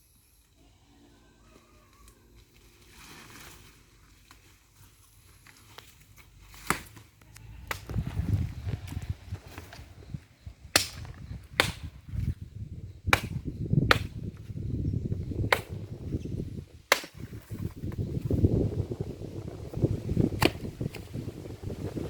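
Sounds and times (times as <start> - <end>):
axe chopping wood: 6.6 - 7.0, 10.7 - 12.3, 13.1 - 14.6, 15.4 - 16.1, 16.9 - 18.0, 20.3 - 21.1
low rumbling noise: 7.5 - 22.0.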